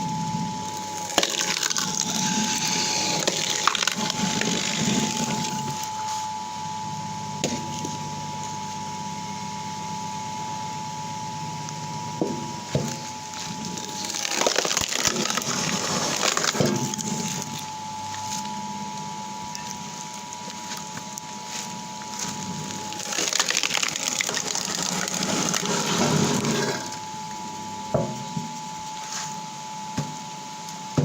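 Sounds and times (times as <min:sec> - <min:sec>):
electric motor whine: 0:00.0 - 0:31.0
wood cracking and splintering: 0:01.0 - 0:05.8, 0:13.6 - 0:17.5, 0:22.2 - 0:27.0.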